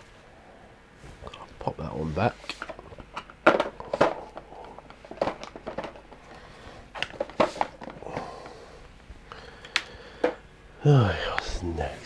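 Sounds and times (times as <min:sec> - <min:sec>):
plastic paint pots clicking on desk: 0:02.5 - 0:10.5.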